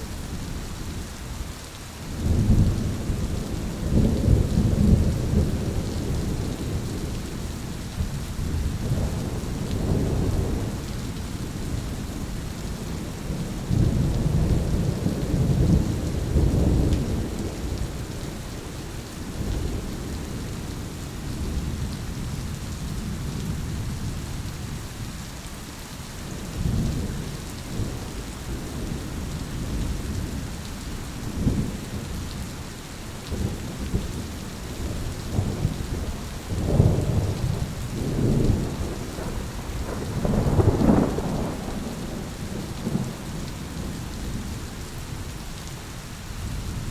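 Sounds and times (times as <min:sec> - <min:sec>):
heavy rain hissing: 0:00.0 - 0:46.9
rolling thunder: 0:33.2 - 0:44.6.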